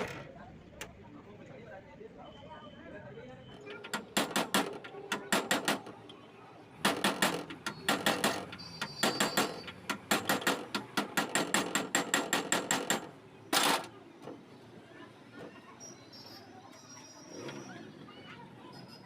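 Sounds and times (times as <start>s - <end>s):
hammer tapping on metal: 3.8s - 6.0s, 6.8s - 13.1s.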